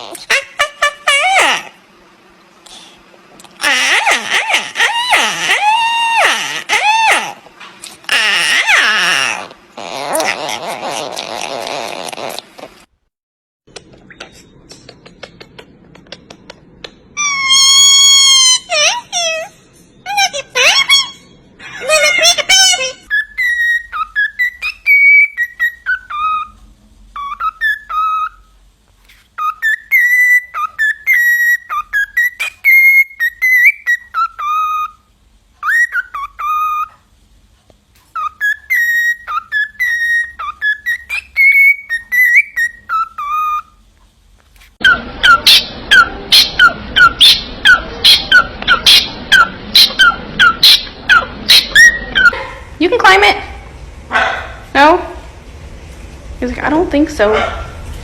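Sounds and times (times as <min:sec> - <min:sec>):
parrot whistling: 0:00.0 - 0:01.8, 0:03.6 - 0:07.4, 0:08.0 - 0:12.5, 0:17.2 - 0:28.6, 0:29.4 - 0:37.1, 0:38.1 - 0:43.8, 0:44.8 - 0:52.5.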